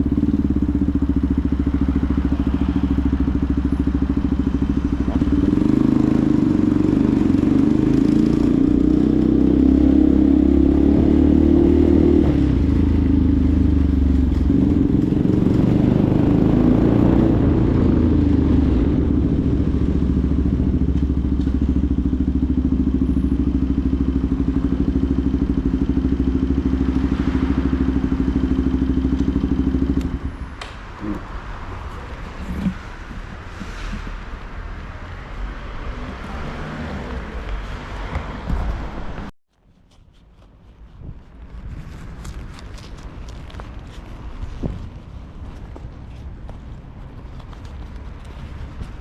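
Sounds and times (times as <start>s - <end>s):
motorcycle engine running: 0.0s - 30.4s.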